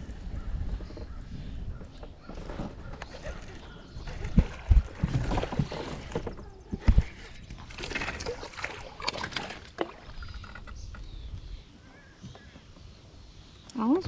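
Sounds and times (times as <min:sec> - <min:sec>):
water splashing and sloshing: 0:00.6 - 0:11.0.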